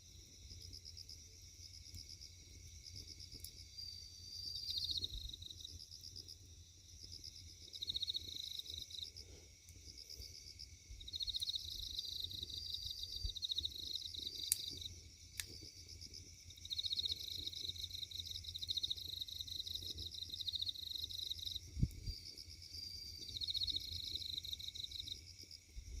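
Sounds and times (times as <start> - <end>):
insects chirping in trills: 0.0 - 26.0
wood fire popping: 13.3 - 16.1.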